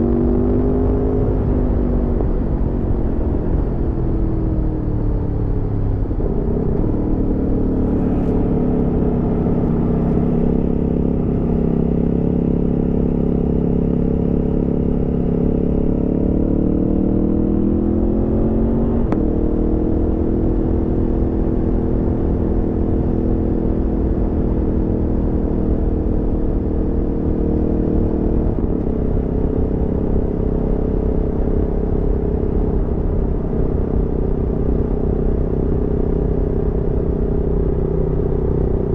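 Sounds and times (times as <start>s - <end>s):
low rumble: 0.0s - 15.5s
motorcycle engine accelerating: 0.0s - 38.9s.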